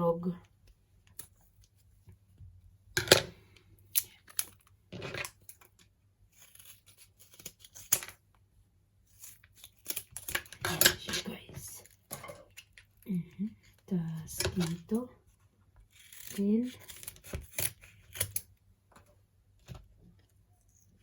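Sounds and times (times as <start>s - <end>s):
plastic packaging tearing and crinkling: 5.0s - 8.2s, 15.9s - 18.5s
scissors snipping: 16.0s - 18.5s.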